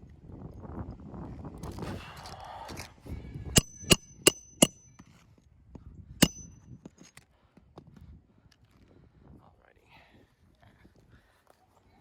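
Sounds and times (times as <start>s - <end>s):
hammer striking nails: 3.6s - 5.0s, 6.2s - 6.6s.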